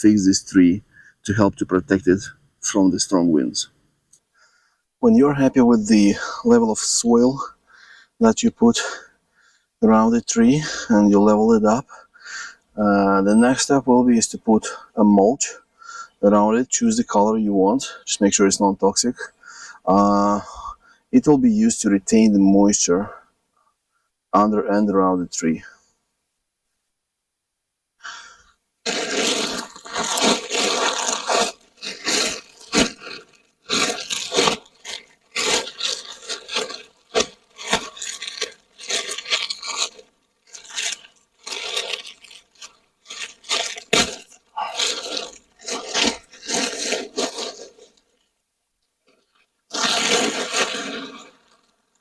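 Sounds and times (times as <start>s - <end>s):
mulch rustling and scraping: 28.8s - 48.3s, 49.0s - 52.0s.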